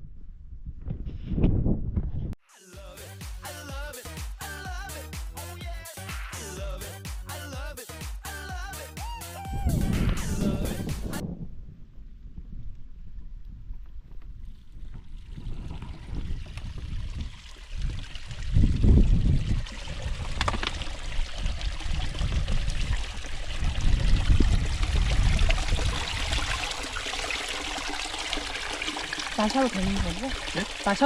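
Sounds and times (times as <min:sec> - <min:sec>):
spring water trickling and splashing: 0:14.8 - 0:31.0.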